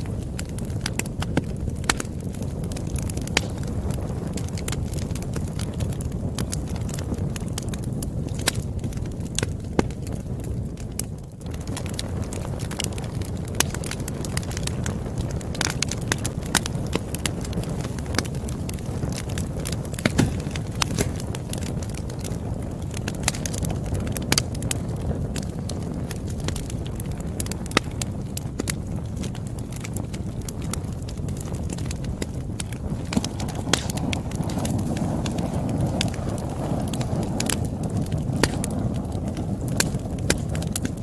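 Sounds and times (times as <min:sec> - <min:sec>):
campfire rumble: 0:00.0 - 0:41.0
fire crackles and pops: 0:00.0 - 0:41.0.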